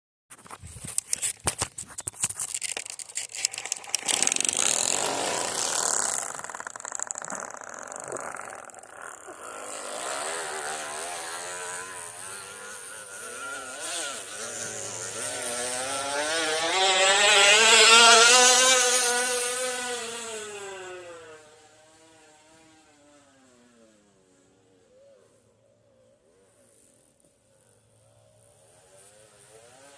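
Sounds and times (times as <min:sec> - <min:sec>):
plastic bottle rattling on bicycle spokes: 0:00.4 - 0:09.7.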